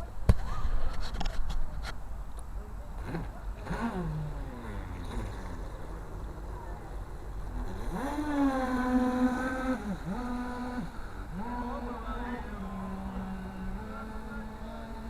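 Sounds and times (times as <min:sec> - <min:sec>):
model boat motor whining: 0:03.0 - 0:15.0.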